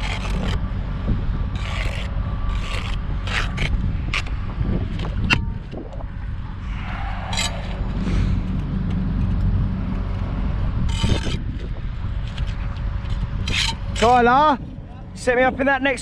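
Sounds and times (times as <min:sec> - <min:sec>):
trowel scraping mortar: 0:00.0 - 0:00.6, 0:01.6 - 0:04.4
wind buffeting microphone: 0:00.0 - 0:16.0.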